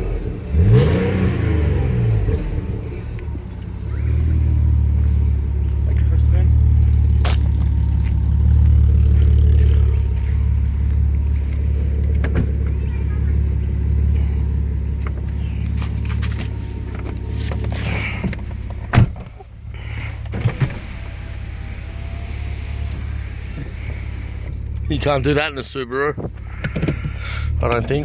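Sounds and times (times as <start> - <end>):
car engine droning: 0.0 - 28.0.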